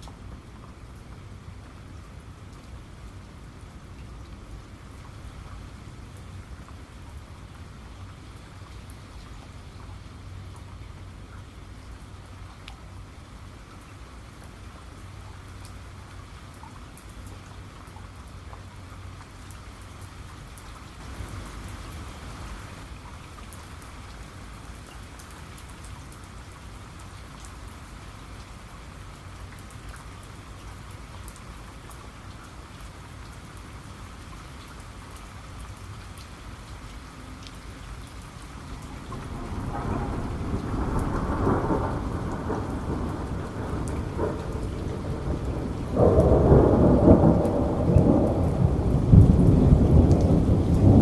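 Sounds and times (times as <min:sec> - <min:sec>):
steady rain falling: 0:00.0 - 0:51.0
thunder rolling: 0:39.0 - 0:51.0.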